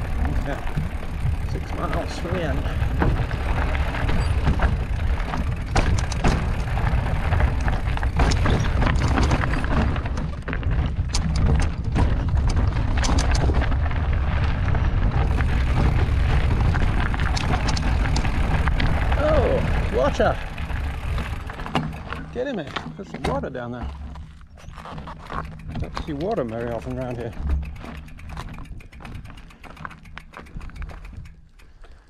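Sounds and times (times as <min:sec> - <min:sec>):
wind buffeting microphone: 0:00.0 - 0:22.7
bike rattling over rocks: 0:00.0 - 0:32.0.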